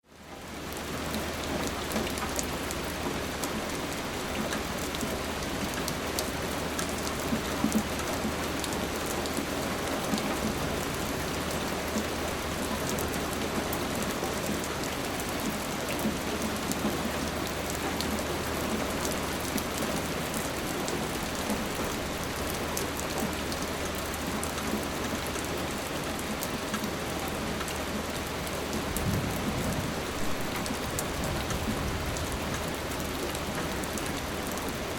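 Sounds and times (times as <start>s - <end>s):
rain drops ticking on hard surface: 0.1s - 34.9s.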